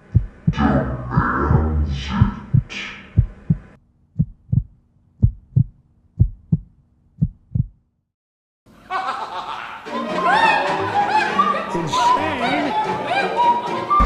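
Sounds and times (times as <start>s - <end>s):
heartbeat thumps: 0.0s - 7.8s
steady low hum: 0.0s - 7.8s.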